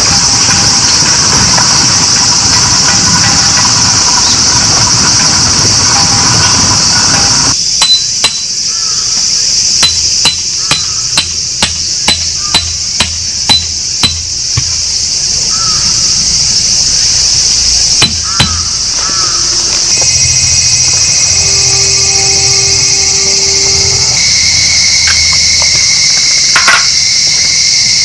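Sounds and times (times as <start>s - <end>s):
hammer strikes: 0.0s - 8.6s, 9.8s - 15.0s, 18.0s - 18.9s
high-pitched insect drone: 0.0s - 28.0s.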